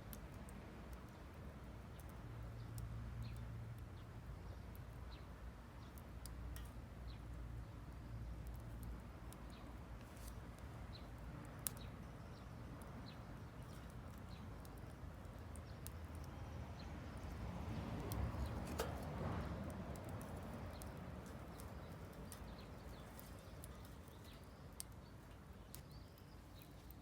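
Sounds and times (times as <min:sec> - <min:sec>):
wood fire crackling: 0:00.0 - 0:27.0
fire pop: 0:18.0 - 0:23.9.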